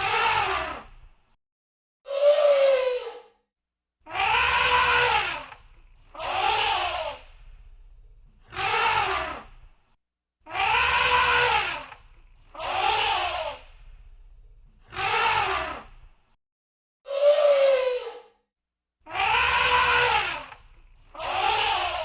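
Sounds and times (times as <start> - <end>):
elephant trumpeting: 4.1 - 5.6, 10.5 - 12.0, 19.1 - 20.6.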